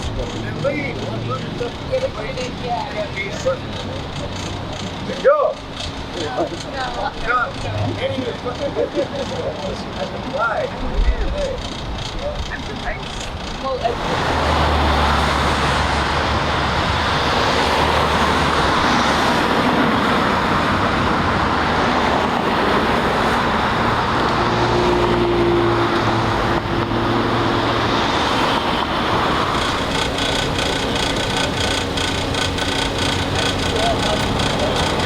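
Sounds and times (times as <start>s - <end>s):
vehicle engines droning: 0.0s - 35.0s
tyres hissing on road: 11.4s - 35.0s.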